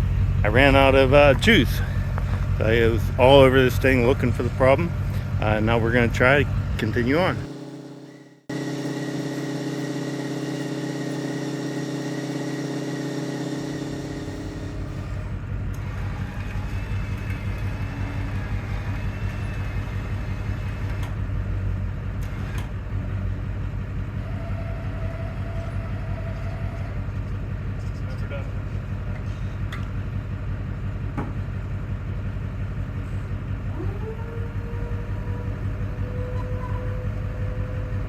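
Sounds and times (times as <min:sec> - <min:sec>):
deep pulsing rumble: 0:00.0 - 0:22.2, 0:30.0 - 0:38.0
electric motor humming: 0:00.1 - 0:21.2, 0:33.7 - 0:38.0.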